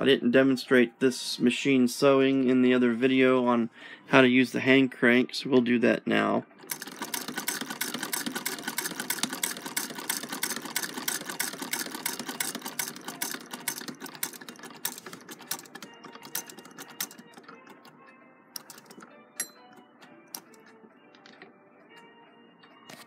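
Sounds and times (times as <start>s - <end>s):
sewing machine clattering: 6.6s - 17.8s, 18.6s - 19.1s.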